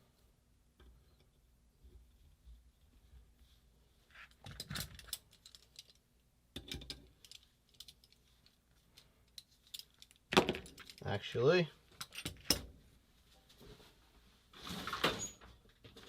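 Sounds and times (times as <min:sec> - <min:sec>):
metal tools clicking and clinking: 0:04.3 - 0:06.0, 0:06.6 - 0:08.2, 0:09.0 - 0:11.1, 0:12.0 - 0:12.7.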